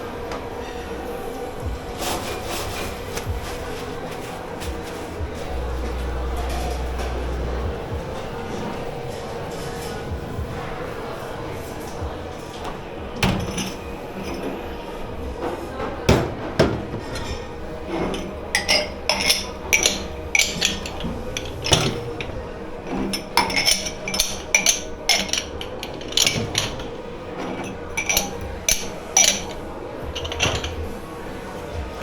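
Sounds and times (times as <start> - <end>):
dishes and cutlery clattering: 10.8 - 32.0.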